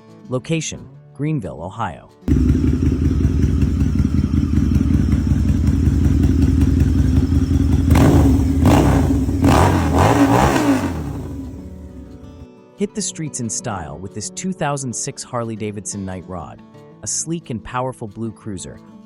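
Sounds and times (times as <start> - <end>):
motorcycle engine idling and revving: 2.3 - 12.4.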